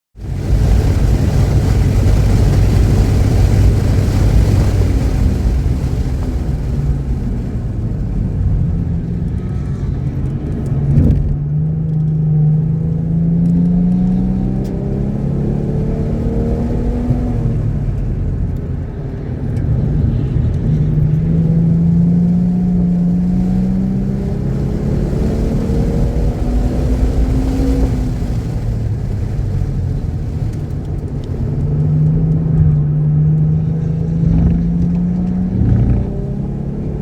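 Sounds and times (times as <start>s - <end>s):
car engine accelerating: 0.2s - 37.0s
wind and road noise: 0.2s - 37.0s
short thump: 10.9s - 11.4s.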